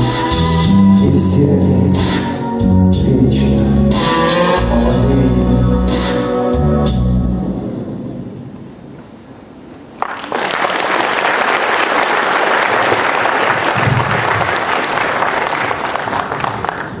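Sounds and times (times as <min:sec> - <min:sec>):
song ending notes: 0:00.0 - 0:07.9
audience applause: 0:10.0 - 0:17.0.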